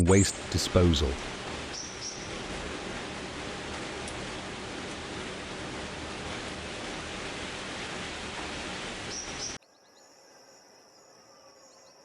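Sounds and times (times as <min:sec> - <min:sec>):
outdoor rushing hiss: 0:00.0 - 0:09.6.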